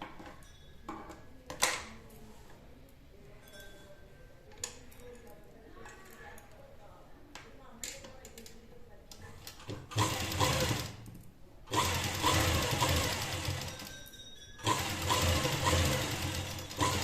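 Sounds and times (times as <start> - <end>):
sewing machine stitching: 9.9 - 11.0, 11.7 - 13.9, 14.6 - 17.0.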